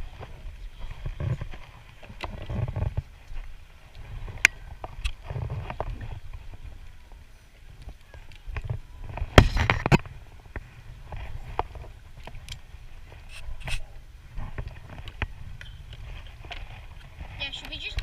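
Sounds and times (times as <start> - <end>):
low rumbling of water: 0.0 - 18.0
sharp knocks against hull: 9.2 - 10.1.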